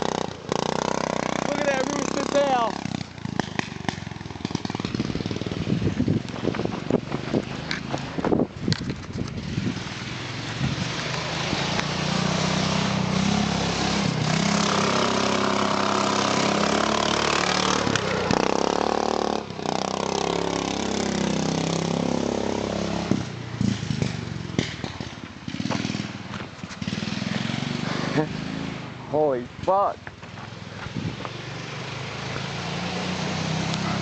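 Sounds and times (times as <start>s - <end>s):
lawn mower engine revving: 0.0s - 29.7s, 30.6s - 34.0s.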